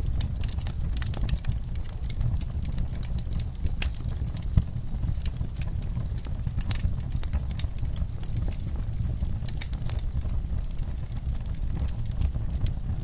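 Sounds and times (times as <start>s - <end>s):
fire crackles and snaps: 0.0s - 13.0s
fire flames rumbling: 0.0s - 13.0s.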